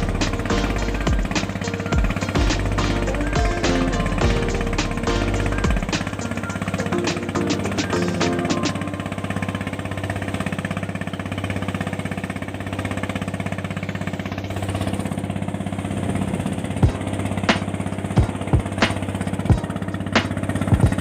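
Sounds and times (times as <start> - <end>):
engine running: 0.0 - 21.0.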